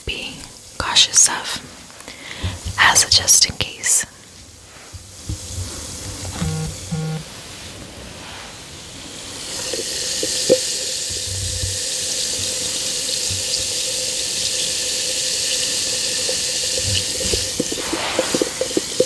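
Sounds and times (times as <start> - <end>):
bath bomb fizzing in water: 8.8 - 19.0.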